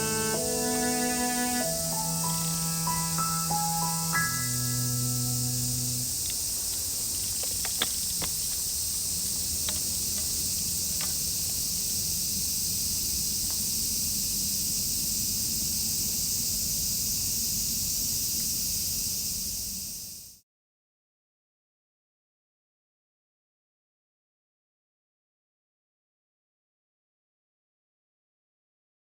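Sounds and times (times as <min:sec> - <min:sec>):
high-pitched insect chorus: 0:00.0 - 0:20.4.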